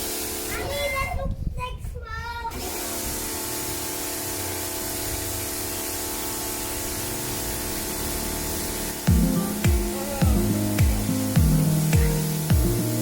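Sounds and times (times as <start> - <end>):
pressure washer spraying water: 0.0 - 0.9, 2.5 - 13.0
motor hum: 2.6 - 13.0.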